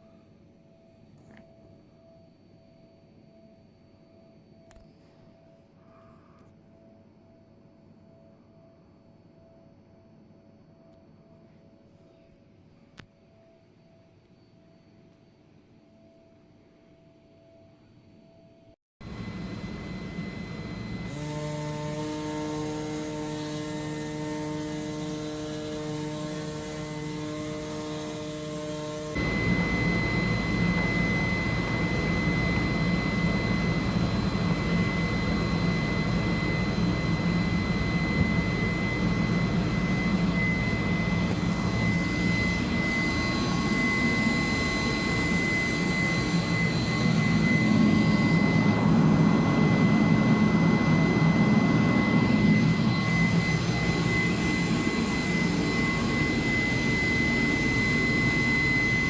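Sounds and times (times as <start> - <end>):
high machine whine: 18.1 - 59.0
cutting machine hum: 19.0 - 59.0.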